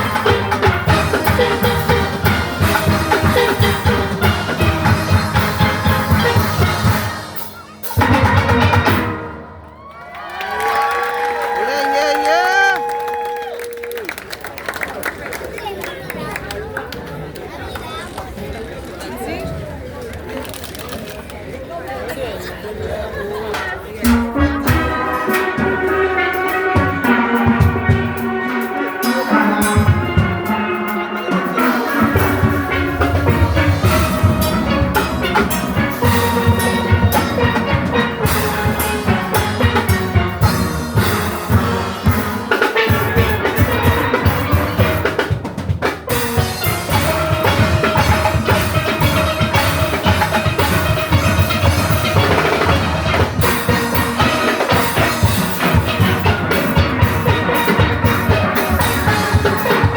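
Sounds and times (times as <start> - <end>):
steelpans playing melody: 0.0 - 9.6, 24.0 - 59.9
drum kit and percussion: 0.0 - 14.3, 23.5 - 59.9.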